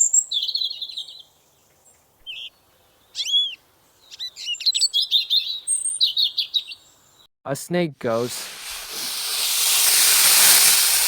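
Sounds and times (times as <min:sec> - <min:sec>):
songbird singing: 0:00.0 - 0:07.3.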